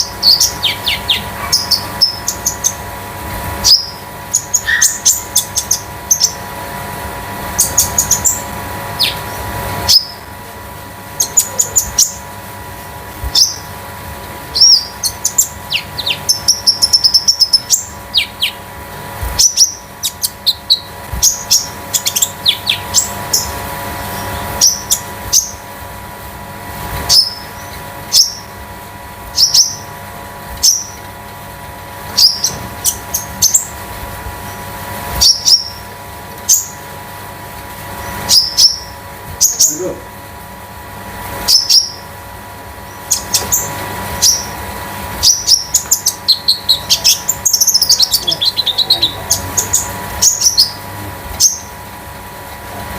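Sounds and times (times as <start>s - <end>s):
bird trilling: 0.0s - 2.9s, 3.6s - 6.4s, 7.5s - 10.3s, 13.3s - 13.7s, 14.5s - 18.7s, 19.4s - 25.7s, 27.0s - 28.6s, 29.3s - 30.0s, 30.6s - 31.0s, 32.1s - 33.8s, 34.4s - 36.9s, 38.0s - 40.0s, 41.4s - 42.2s, 42.8s - 51.8s
faint steady hum: 0.0s - 52.9s.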